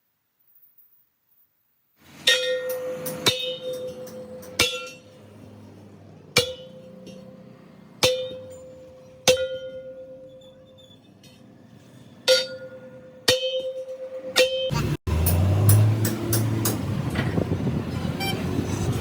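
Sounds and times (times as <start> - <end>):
hammer striking ringing steel rim: 2.1 - 11.6, 12.2 - 16.9.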